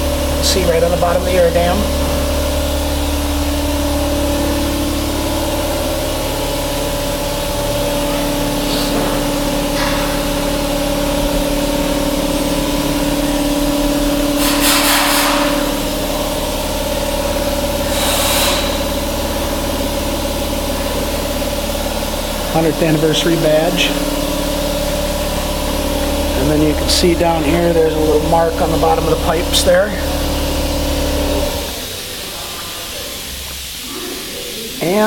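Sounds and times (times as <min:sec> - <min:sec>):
motorcycle engine idling: 0:00.0 - 0:14.6.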